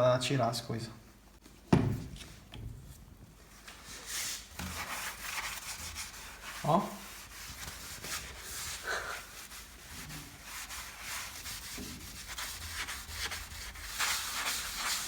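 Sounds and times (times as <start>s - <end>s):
sponge scrubbing glass: 3.9s - 15.0s.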